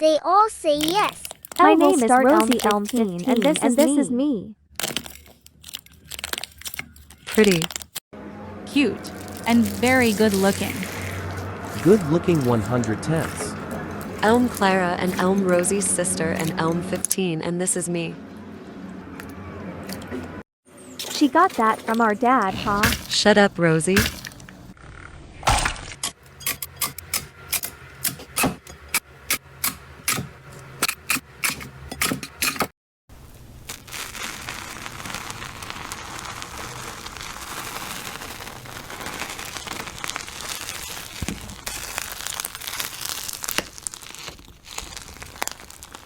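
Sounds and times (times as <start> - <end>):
slime crackling: 0.8 - 3.9, 4.8 - 8.0, 9.0 - 16.6, 33.7 - 46.0.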